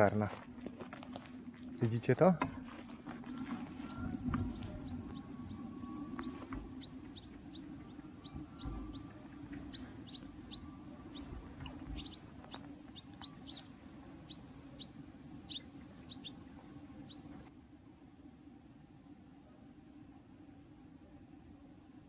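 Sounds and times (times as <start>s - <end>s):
low background hum: 0.0s - 22.0s
small bird chirping: 3.8s - 16.4s.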